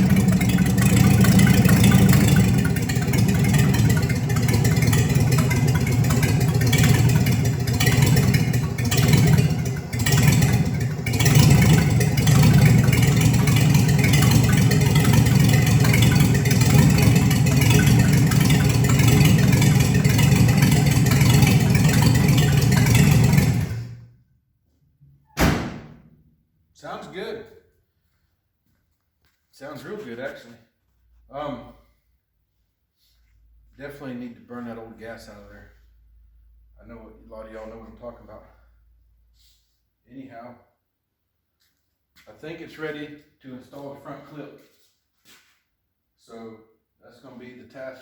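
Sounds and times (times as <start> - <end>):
engine running: 0.0 - 24.1.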